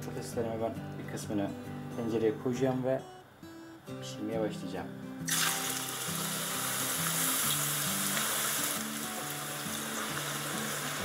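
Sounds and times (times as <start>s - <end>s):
soft acoustic guitar music: 0.0s - 11.0s
potato slices sizzling in oil: 5.3s - 11.0s.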